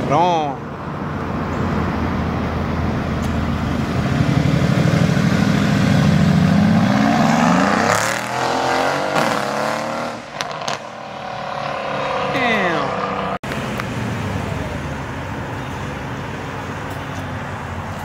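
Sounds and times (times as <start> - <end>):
car accelerating past: 3.9 - 13.4.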